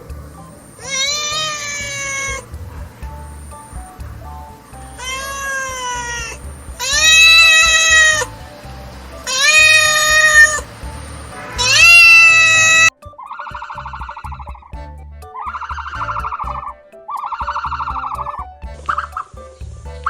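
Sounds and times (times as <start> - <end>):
background music: 0.0 - 20.0
cat meowing: 0.8 - 2.6, 5.0 - 8.3, 9.2 - 10.7, 11.5 - 12.9.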